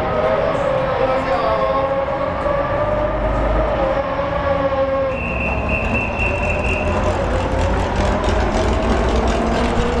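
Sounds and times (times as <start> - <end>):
racing car engine running: 5.2 - 10.0.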